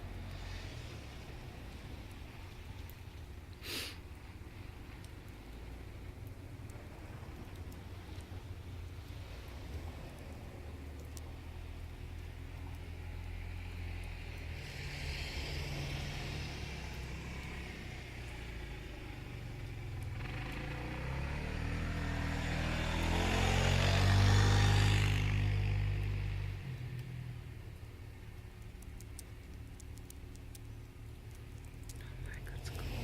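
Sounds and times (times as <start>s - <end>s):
hiss: 3.6s - 4.0s
car engine revving: 20.0s - 26.4s.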